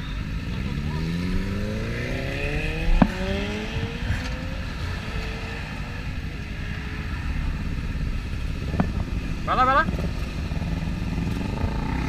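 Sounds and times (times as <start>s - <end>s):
wind rumble on microphone: 0.0s - 12.0s
motorcycle engine running: 6.0s - 12.0s.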